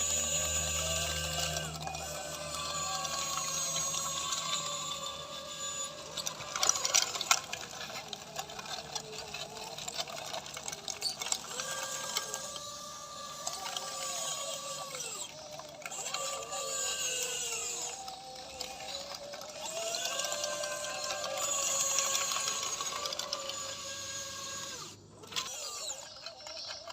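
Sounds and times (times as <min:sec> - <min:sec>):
electric motors whining: 0:00.0 - 0:26.9.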